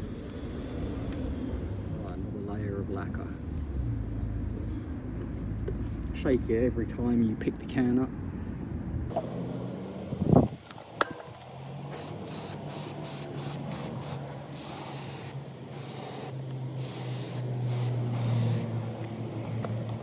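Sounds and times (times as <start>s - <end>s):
low hum: 0.0s - 7.1s
aerosol spray can hissing: 11.9s - 18.8s.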